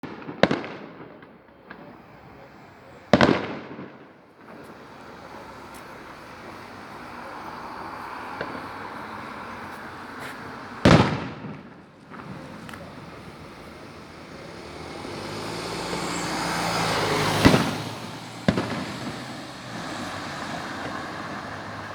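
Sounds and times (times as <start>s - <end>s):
small firework pops: 0.0s - 6.6s, 8.2s - 13.7s, 17.4s - 21.8s
firework shell bursts: 17.4s - 19.4s.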